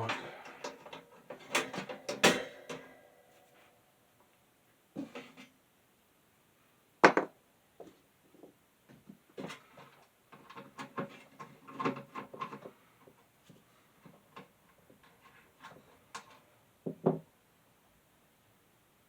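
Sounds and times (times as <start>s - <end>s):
clicks and knocks of handled parts: 0.0s - 3.0s, 8.9s - 16.5s.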